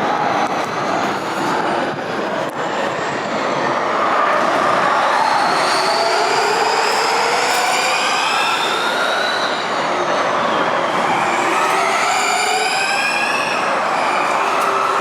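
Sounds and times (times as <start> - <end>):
electric race car whine: 4.2 - 15.0.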